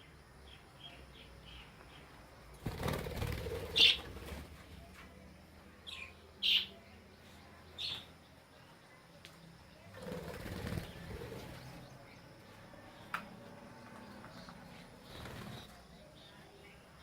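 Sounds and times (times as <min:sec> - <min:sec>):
wings flapping: 0:02.6 - 0:04.7, 0:10.0 - 0:11.8, 0:15.0 - 0:15.8
bird chirps: 0:05.8 - 0:08.8.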